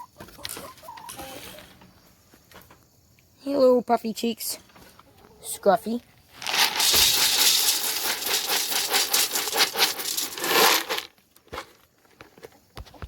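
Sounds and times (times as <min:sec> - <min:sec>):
dry animal feed being poured: 0:06.4 - 0:11.1.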